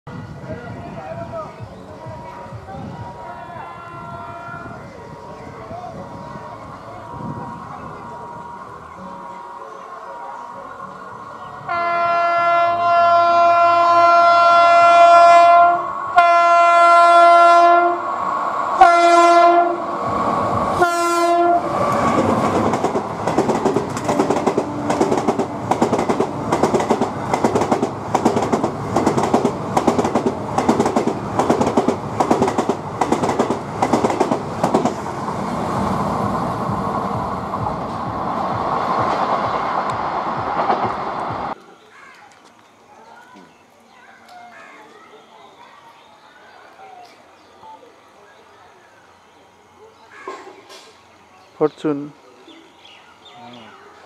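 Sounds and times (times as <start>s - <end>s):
locomotive air horn blasts: 11.7s - 18.1s, 18.8s - 19.9s, 20.8s - 21.8s
train wheels clattering over rail joints: 22.2s - 35.0s.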